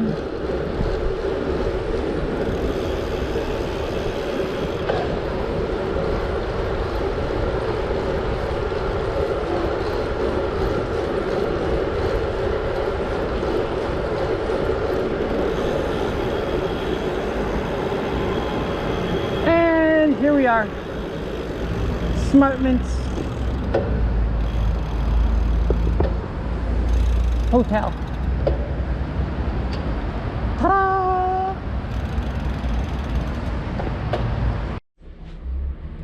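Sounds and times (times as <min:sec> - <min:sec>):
bike tyre noise on gravel: 0:00.0 - 0:26.0
wind rushing: 0:00.0 - 0:30.6
constant hum: 0:00.0 - 0:36.0.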